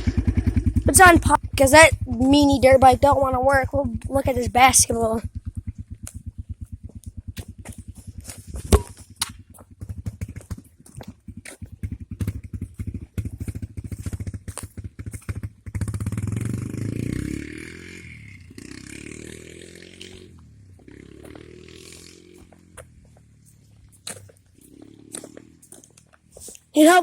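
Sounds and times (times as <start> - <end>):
dirt bike engine idling: 0.0 - 27.0.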